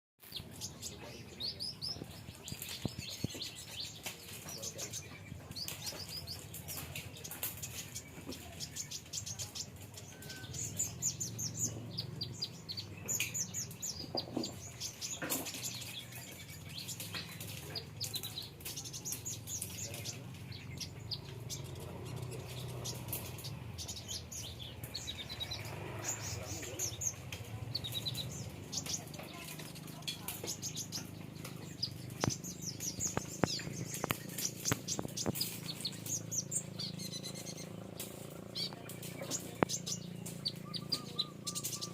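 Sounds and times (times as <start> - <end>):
small birds chirping: 0.2 - 41.9
wings fluttering: 13.0 - 41.9.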